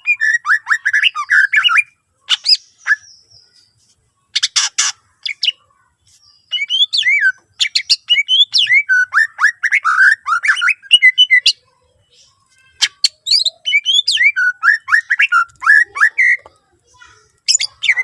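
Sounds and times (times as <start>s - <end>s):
bird singing whistled notes: 0.0s - 4.6s, 6.2s - 18.0s
bird sharp clicking calls: 4.4s - 5.6s.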